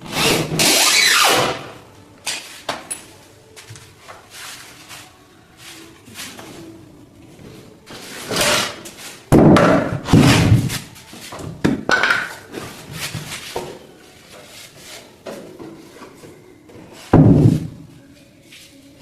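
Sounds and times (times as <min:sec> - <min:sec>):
wooden panels knocking and thudding: 0:09.3 - 0:10.7, 0:17.1 - 0:17.8.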